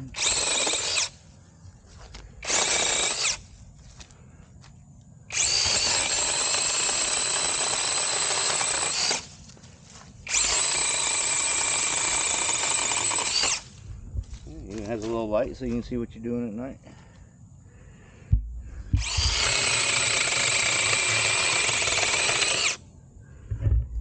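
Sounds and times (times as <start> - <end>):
mini chainsaw whirring: 0.0 - 1.2, 2.4 - 3.5, 5.3 - 9.4, 10.3 - 13.7, 19.0 - 22.8.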